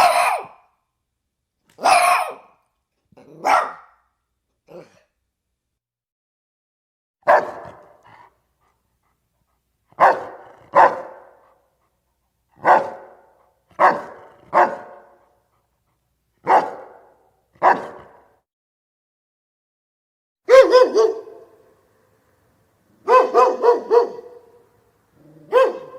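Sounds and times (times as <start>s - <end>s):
dog barking: 0.0s - 0.7s, 1.8s - 2.6s, 3.2s - 4.0s, 7.2s - 8.3s, 10.0s - 11.6s, 12.6s - 15.4s, 16.4s - 18.4s, 20.5s - 21.6s, 23.0s - 24.6s, 25.2s - 25.9s.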